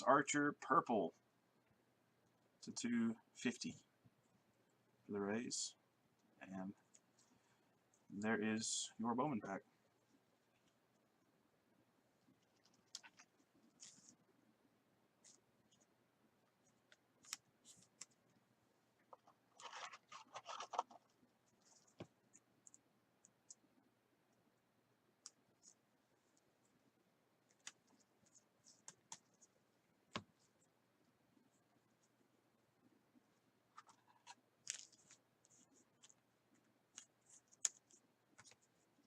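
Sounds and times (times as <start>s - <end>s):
light clicks and scratches: 12.3s - 14.3s, 16.6s - 18.4s, 19.0s - 23.7s, 33.7s - 39.0s
packaging rustle: 19.5s - 21.1s.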